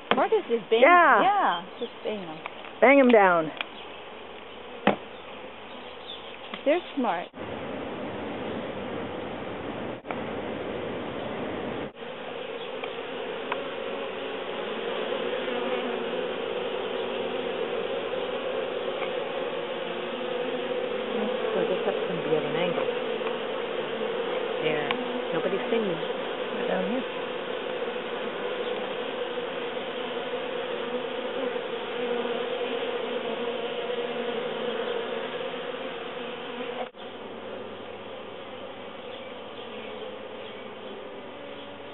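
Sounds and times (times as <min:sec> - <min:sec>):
honeybees buzzing: 0:00.0 - 0:41.9.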